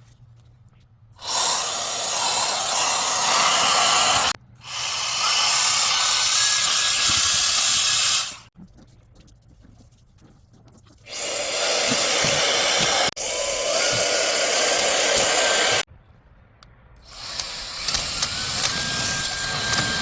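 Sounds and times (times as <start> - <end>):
cordless air gun rushing air: 1.2 - 8.5, 11.1 - 15.9, 17.0 - 20.0.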